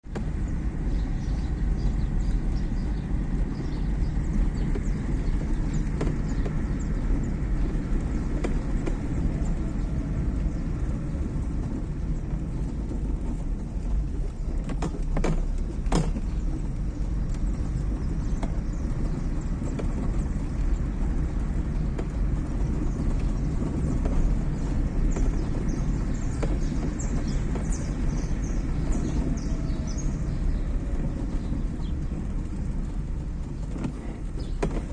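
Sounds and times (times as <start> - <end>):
car engine and road rumble: 0.0 - 34.9.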